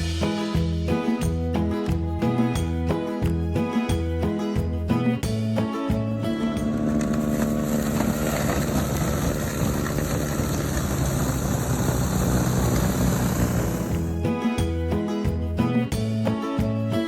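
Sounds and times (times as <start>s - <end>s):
engine humming: 6.2s - 15.5s.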